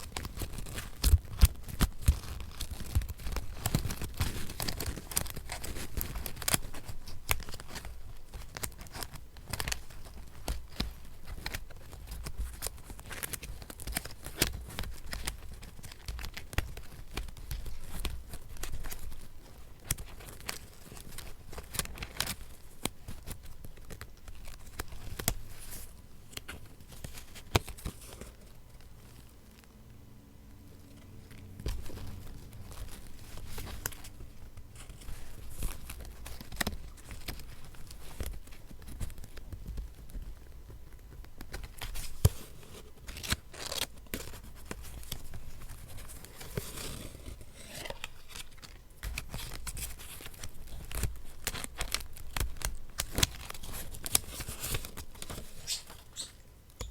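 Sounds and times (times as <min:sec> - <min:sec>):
paper tearing and crinkling: 0:41.8 - 0:56.2.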